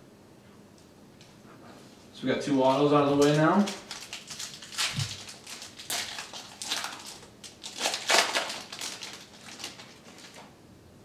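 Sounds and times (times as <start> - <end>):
foil wrapper crinkling: 2.5 - 10.6.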